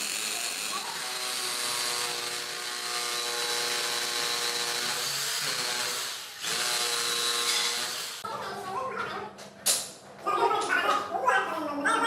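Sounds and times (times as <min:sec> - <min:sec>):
electric power tool motor whine: 0:00.0 - 0:08.2.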